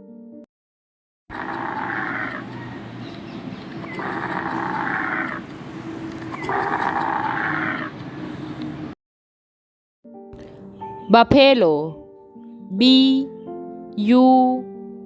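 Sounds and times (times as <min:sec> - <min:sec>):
camel bellowing: 0:01.3 - 0:08.0.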